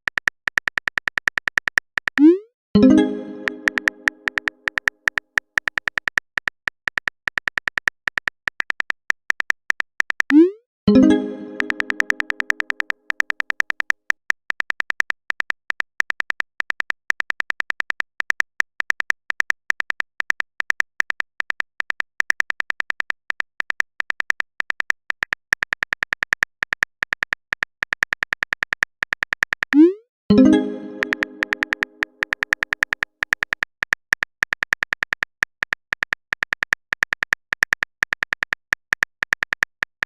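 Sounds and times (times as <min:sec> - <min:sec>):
message chime: 0:02.2 - 0:04.4, 0:10.9 - 0:12.5, 0:29.8 - 0:32.1
phone keyboard tap clicks: 0:03.4 - 0:10.4, 0:11.4 - 0:29.8, 0:30.8 - 0:40.0.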